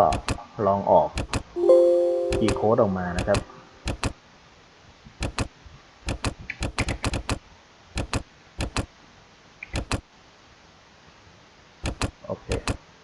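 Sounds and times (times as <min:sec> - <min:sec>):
computer mouse clicks: 0:03.9 - 0:04.1, 0:06.1 - 0:07.4, 0:08.0 - 0:08.9, 0:09.6 - 0:10.0, 0:11.8 - 0:12.8.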